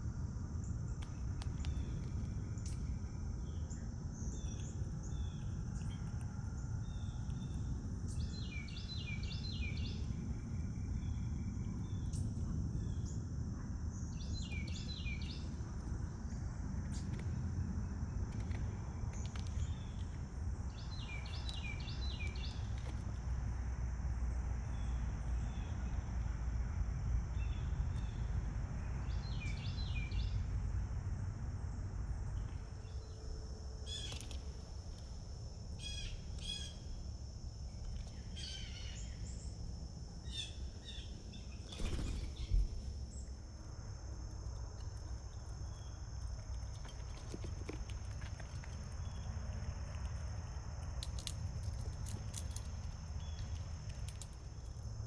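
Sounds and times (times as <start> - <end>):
low outdoor rumble: 0.0 - 55.0
small birds chirping: 0.6 - 13.2, 13.9 - 17.1, 19.1 - 22.9, 35.6 - 37.1, 37.7 - 43.4, 51.2 - 54.8.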